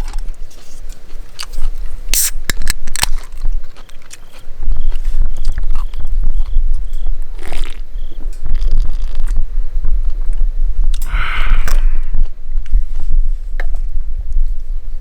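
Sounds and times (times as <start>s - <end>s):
person chewing and crunching food: 0.0s - 7.9s.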